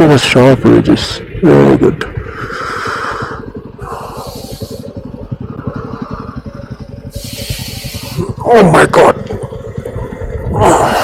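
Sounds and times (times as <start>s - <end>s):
motorcycle engine running: 0.0s - 11.0s
hiss: 2.6s - 4.9s, 7.1s - 8.3s.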